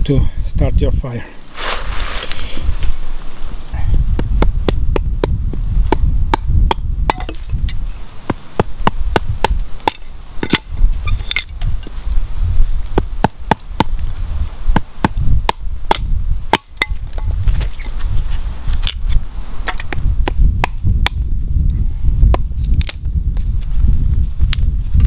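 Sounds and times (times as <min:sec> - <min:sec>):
hatchet chopping wood: 0:04.1 - 0:10.7, 0:12.9 - 0:14.0, 0:14.7 - 0:17.7, 0:19.6 - 0:21.2, 0:22.3 - 0:23.0.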